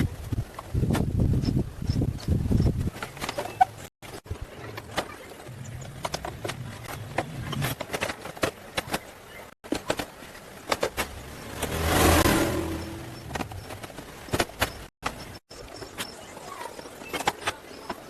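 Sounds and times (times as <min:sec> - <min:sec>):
sharp clicks and knocks: 0:13.1 - 0:16.1.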